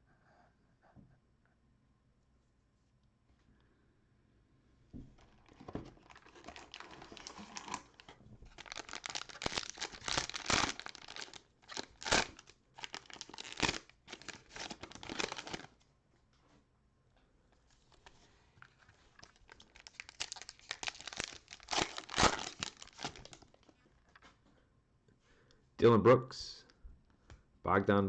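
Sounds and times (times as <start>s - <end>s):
cellophane wrapper crinkling and tearing: 5.2s - 15.8s, 17.7s - 24.2s.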